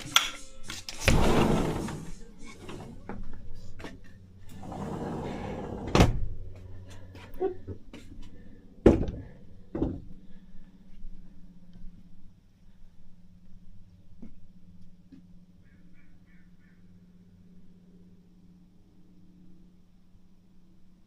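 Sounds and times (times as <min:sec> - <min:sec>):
rustling or scraping: 0:00.8 - 0:03.1, 0:04.4 - 0:05.9.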